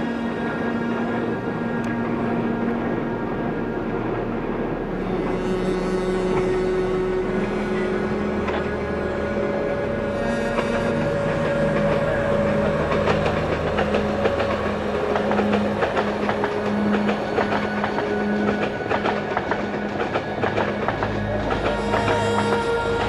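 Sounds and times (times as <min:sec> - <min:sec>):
steady low hum: 0:00.0 - 0:23.0
train wheels clicking over rail joints: 0:10.5 - 0:23.0.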